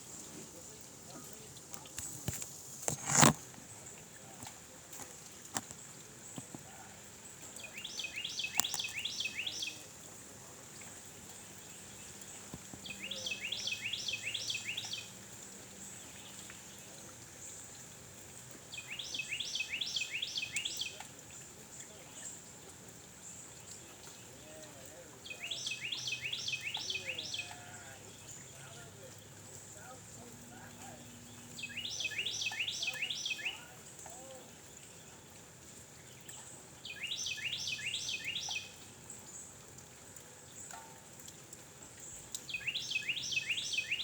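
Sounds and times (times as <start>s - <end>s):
songbird singing high notes: 12.8s - 15.1s, 25.2s - 28.8s, 31.0s - 33.8s, 36.8s - 38.8s, 42.5s - 44.0s.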